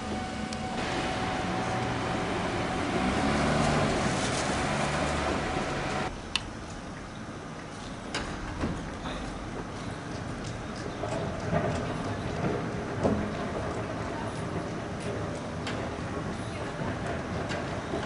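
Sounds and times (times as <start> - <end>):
vehicle engine running: 0.0 - 6.1
road or wind noise: 0.0 - 18.0.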